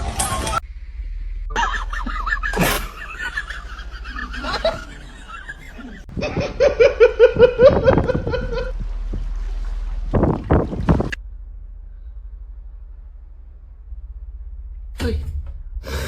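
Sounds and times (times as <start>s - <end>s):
person laughing: 1.5s - 8.7s.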